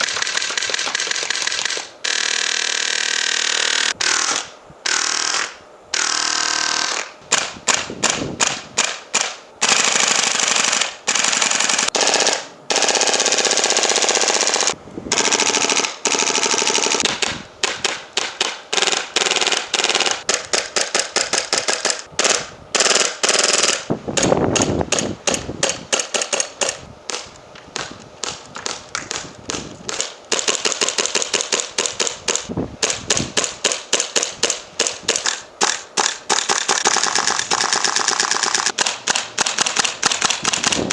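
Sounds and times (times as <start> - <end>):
airsoft guns firing: 0.0 - 40.9.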